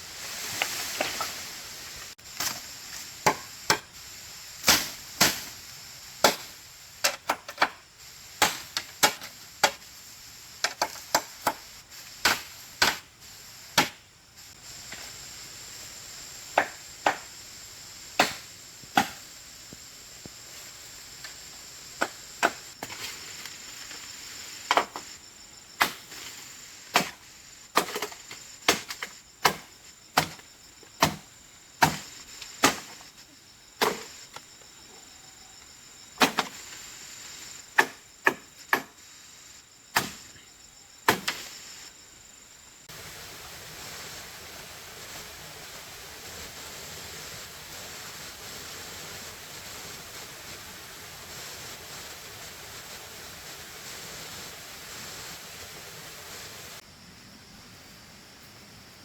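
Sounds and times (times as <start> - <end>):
insects chirping: 0.0 - 59.0
hand tool striking wood: 13.8 - 14.0, 16.6 - 17.3, 19.0 - 19.2, 26.9 - 27.2, 27.8 - 30.4, 31.0 - 31.2, 31.8 - 32.0, 37.8 - 39.0.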